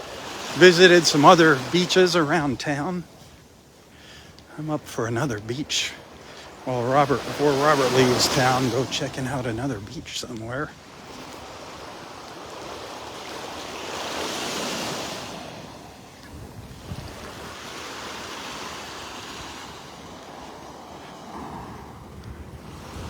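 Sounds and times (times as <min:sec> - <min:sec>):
surf washing onto beach: 0:00.0 - 0:23.0
wind buffeting microphone: 0:16.2 - 0:18.2, 0:21.2 - 0:23.0.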